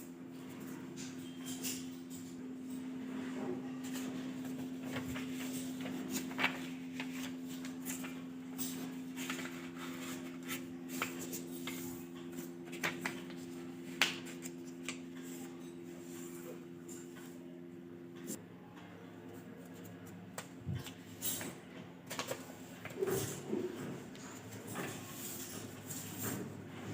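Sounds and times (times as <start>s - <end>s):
paper rustling and crackling: 3.8s - 15.2s.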